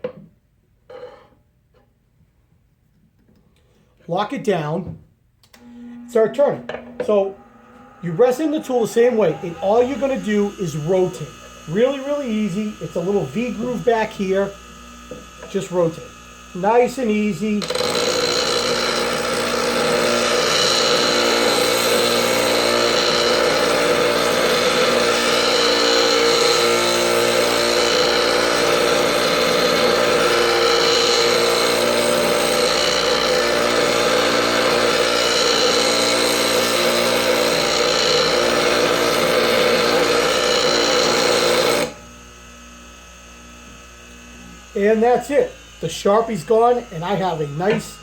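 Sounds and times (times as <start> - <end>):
bench grinder motor hum: 5.6 - 48.0
steel grinding on wheel: 5.7 - 14.5, 16.6 - 42.0.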